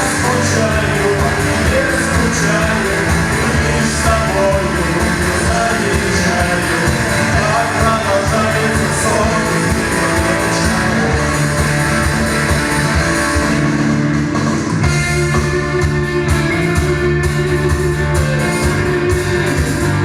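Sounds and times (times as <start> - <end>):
person singing: 0.0 - 13.5
rock band playing: 0.0 - 20.0.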